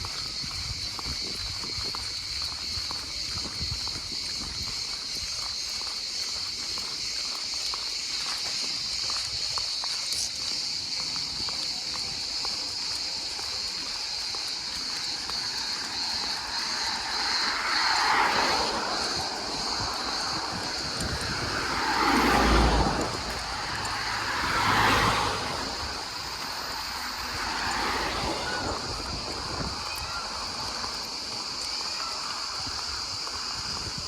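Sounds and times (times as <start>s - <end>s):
rushing swells: 15.0s - 31.7s.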